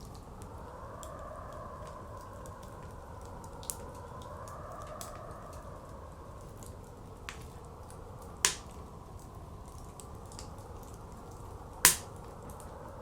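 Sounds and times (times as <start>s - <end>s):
blizzard wind: 0.0s - 13.0s
wood fire crackling: 0.0s - 13.0s
sharp pops: 8.5s - 8.8s, 11.9s - 12.1s.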